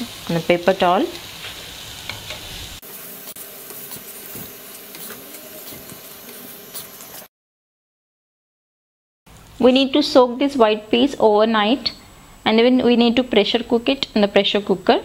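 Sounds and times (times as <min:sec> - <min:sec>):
potato patties sizzling in oil: 0:00.0 - 0:07.3
spatula scraping and tapping: 0:01.4 - 0:02.6, 0:03.3 - 0:07.2.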